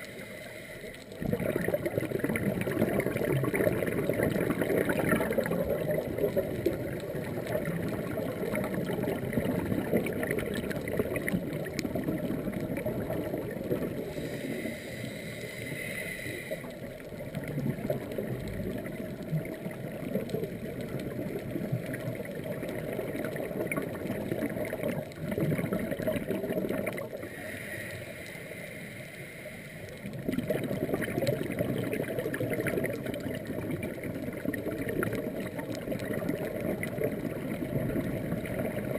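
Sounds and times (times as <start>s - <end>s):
bubbly gurgling of exhaled air: 0.0s - 28.2s, 29.9s - 38.9s
hissing regulator inhalations: 14.0s - 16.8s, 27.2s - 30.0s.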